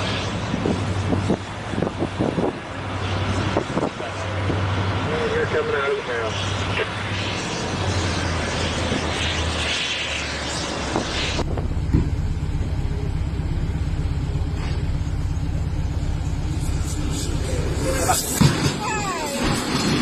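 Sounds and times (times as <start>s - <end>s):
broad rush of vehicle noise: 0.0s - 20.0s
low fast engine throb: 11.4s - 18.6s.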